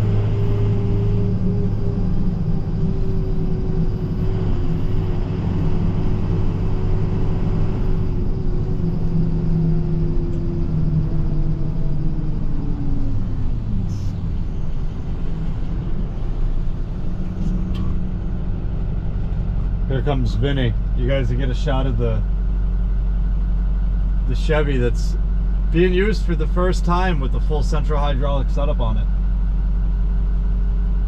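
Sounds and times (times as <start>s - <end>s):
truck engine rumble and whine: 0.0s - 31.0s.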